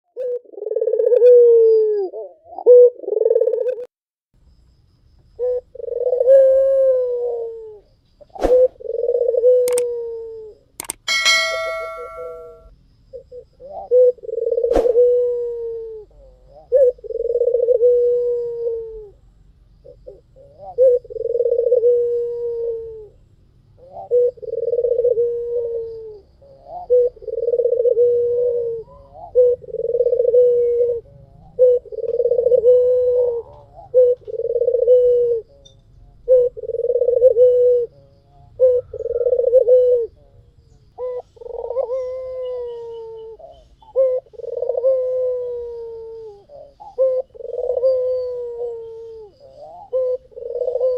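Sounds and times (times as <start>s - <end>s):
dove cooing: 0.1s - 3.9s, 5.4s - 12.6s, 13.2s - 50.9s.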